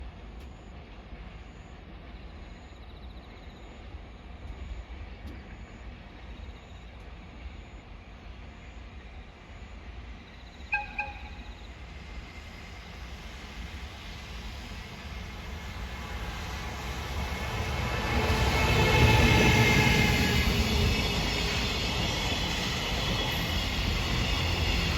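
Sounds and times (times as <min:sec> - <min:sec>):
freight train rumbling: 0:00.0 - 0:24.9
train horn toots: 0:10.7 - 0:11.5.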